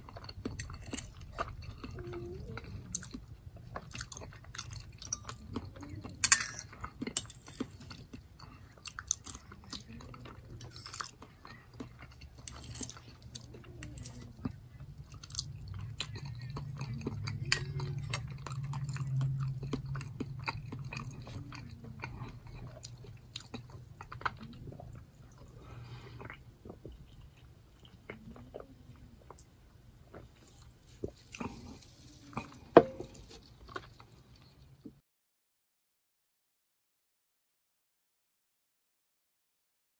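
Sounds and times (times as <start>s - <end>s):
chewing mouth sounds: 0.0s - 29.5s, 30.1s - 34.8s
low steady hum: 0.0s - 34.9s
fork clinking on plate: 6.2s - 7.4s.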